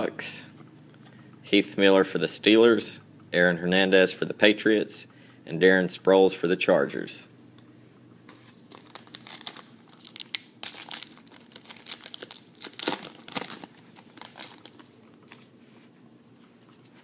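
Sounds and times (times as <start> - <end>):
card pack wrapper crinkling: 8.3 - 15.5.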